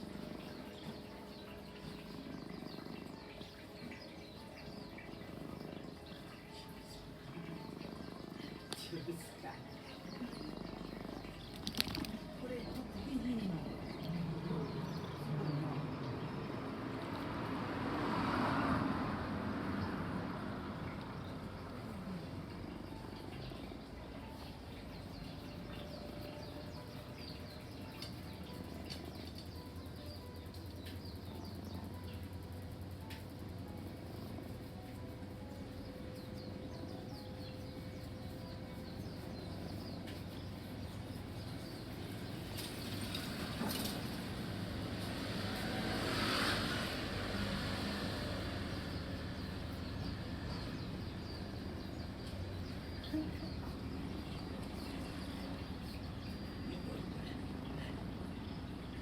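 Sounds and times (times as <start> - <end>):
small birds chirping: 0.0 - 17.7, 19.6 - 59.0
outdoor background noise: 0.0 - 59.0
vehicle passing: 12.1 - 32.1, 41.4 - 59.0.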